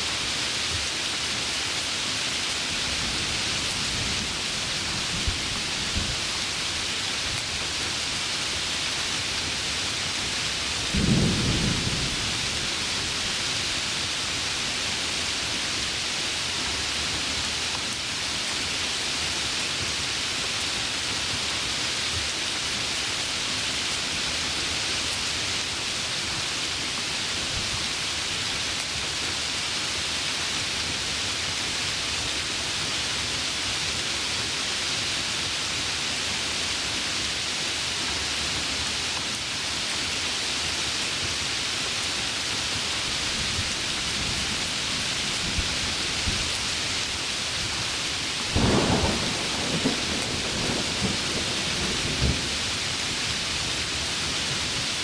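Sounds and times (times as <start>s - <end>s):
heavy rain: 0.0s - 55.0s
low rumble of thunder: 10.8s - 13.2s, 48.5s - 52.7s.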